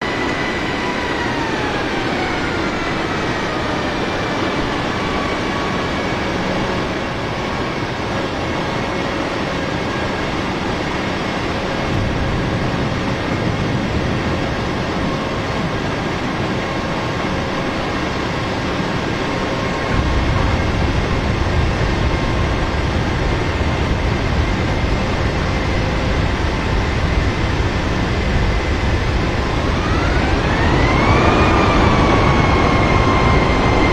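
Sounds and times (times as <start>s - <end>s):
airliner cabin air and engine noise: 0.0s - 33.9s
jet engine whine: 0.0s - 33.9s
low rumble: 11.8s - 15.8s, 19.7s - 33.9s.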